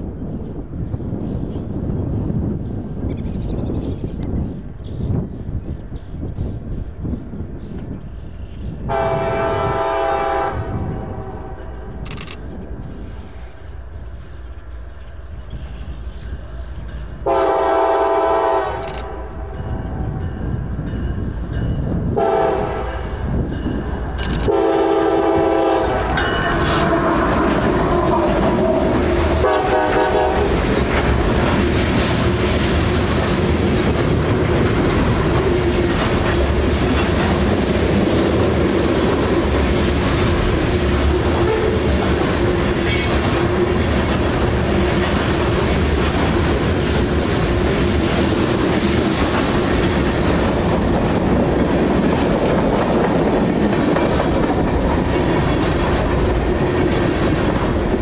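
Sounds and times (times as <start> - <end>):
train wheels rumbling over rails: 0.0 - 58.0
locomotive air horn blasts: 8.9 - 11.6, 17.2 - 19.3, 22.2 - 23.0, 24.5 - 26.0, 29.4 - 30.5, 41.4 - 41.8.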